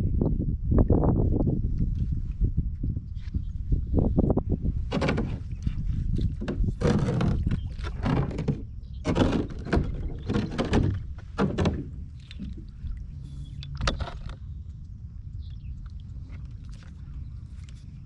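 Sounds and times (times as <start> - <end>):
wind on microphone: 0.0 - 18.0
gear knocking and scraping: 4.9 - 12.6.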